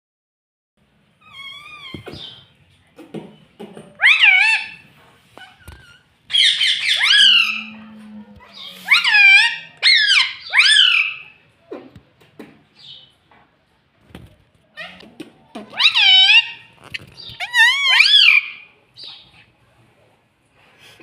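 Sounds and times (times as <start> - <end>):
parrot calling: 1.2 - 2.4, 4.0 - 4.8, 5.4 - 11.4, 15.6 - 19.4.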